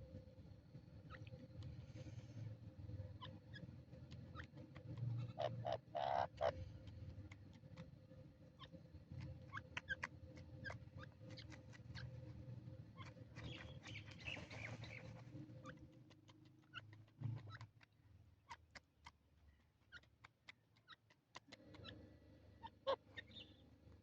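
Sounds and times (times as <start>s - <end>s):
low steady hum: 0.0s - 18.6s.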